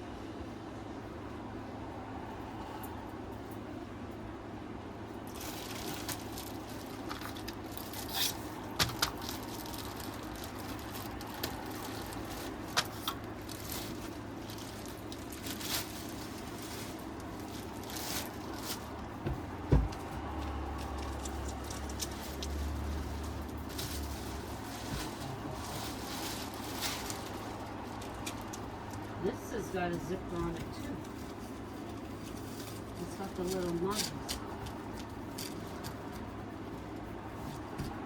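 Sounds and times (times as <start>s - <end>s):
steady background noise: 0.0s - 38.0s
furniture handling knocks and clicks: 19.0s - 20.6s.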